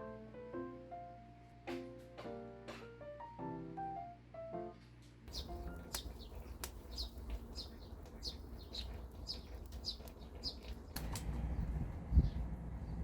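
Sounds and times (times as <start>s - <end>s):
bird chirping: 5.3s - 13.0s
low outdoor rumble: 5.3s - 13.0s
sharp clicks: 9.7s - 11.4s.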